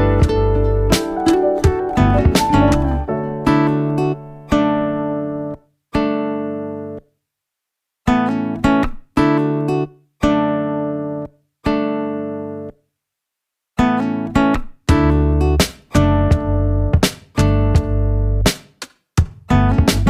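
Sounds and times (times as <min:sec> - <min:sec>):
plucked guitar chords: 0:00.0 - 0:07.0, 0:13.8 - 0:18.5, 0:19.5 - 0:20.0.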